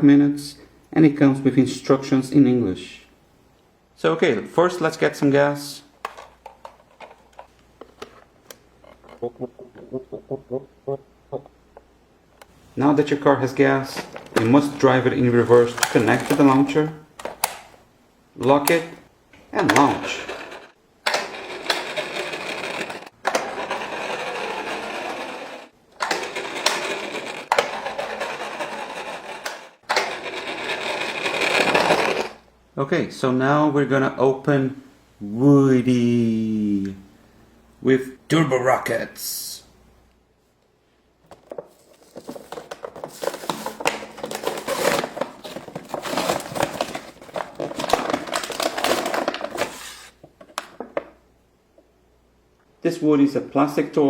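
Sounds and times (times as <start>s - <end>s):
toy car launcher rattling: 15.6s - 17.8s, 19.6s - 32.4s
plastic packaging crinkling: 41.3s - 50.9s.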